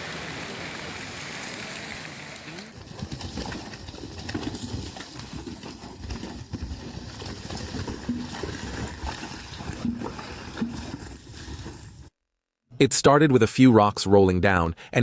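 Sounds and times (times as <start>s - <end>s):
rushing floodwater: 0.0s - 2.8s.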